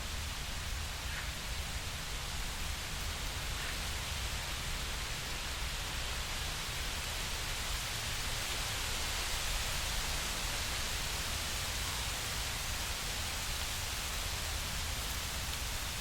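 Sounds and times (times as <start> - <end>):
steady rushing hiss: 0.0 - 16.0.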